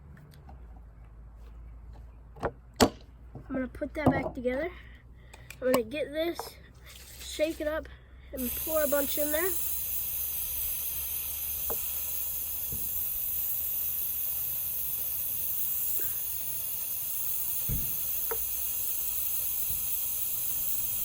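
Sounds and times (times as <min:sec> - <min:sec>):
steady hiss: 0:08.4 - 0:21.0.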